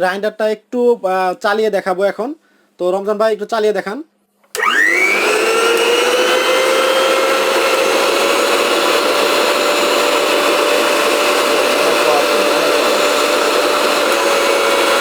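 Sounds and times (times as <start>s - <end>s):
mixer grinder motor whining: 4.5s - 15.0s.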